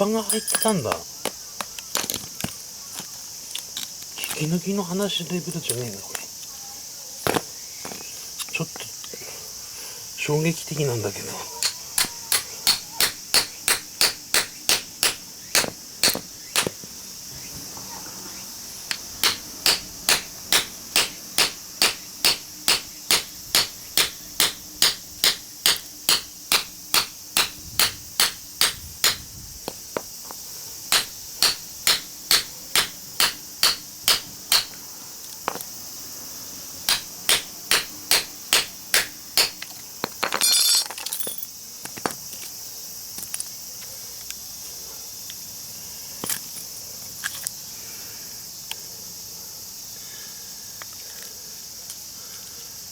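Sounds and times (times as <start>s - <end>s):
hammer striking chisel on metal: 0.3s - 0.8s, 11.6s - 16.7s, 19.2s - 29.2s, 30.9s - 34.8s, 36.9s - 39.6s.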